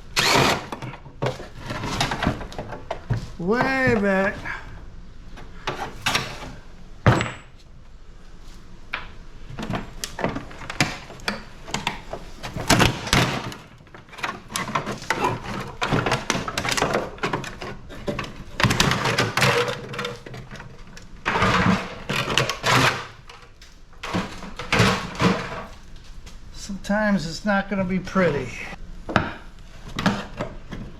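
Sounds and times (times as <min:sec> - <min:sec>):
tools clanking on sheet metal: 0:10.1 - 0:25.8.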